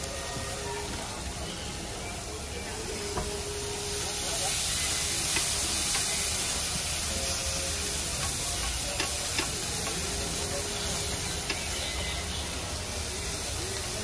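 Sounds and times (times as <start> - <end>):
dosas sizzling on griddle: 0.0 - 14.0
brush on griddle: 2.8 - 14.0.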